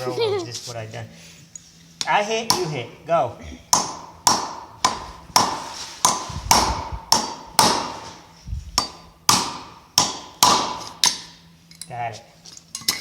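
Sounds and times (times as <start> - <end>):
hammers striking steel: 3.7 - 8.1, 8.8 - 11.4.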